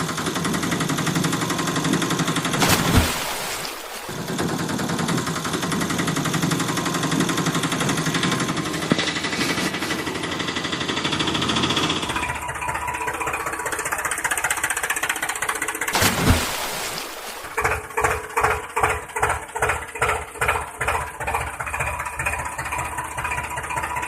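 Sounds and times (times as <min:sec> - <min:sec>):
engine knocking rattle: 0:04.4 - 0:15.9, 0:17.7 - 0:24.0.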